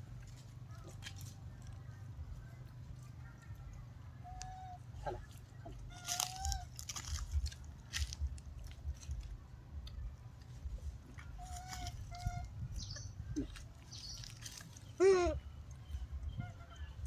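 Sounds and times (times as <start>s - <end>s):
monkeys crunching and chewing food: 5.6s - 12.4s, 13.3s - 15.4s
monkey calls: 15.0s - 15.4s.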